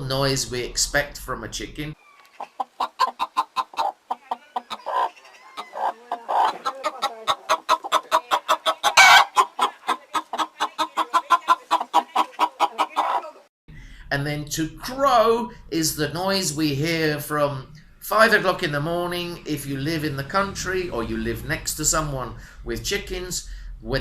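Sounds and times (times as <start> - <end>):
chicken clucking: 2.1 - 13.5.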